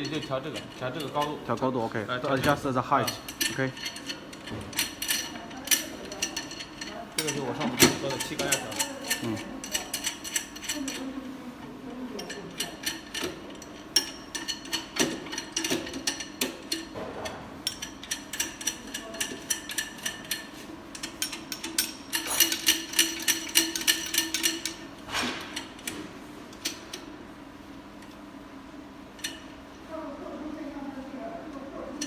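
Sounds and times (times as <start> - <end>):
metallic clicking and ratcheting: 0.0 - 11.0, 17.6 - 24.9
steady machine hum: 0.0 - 32.0.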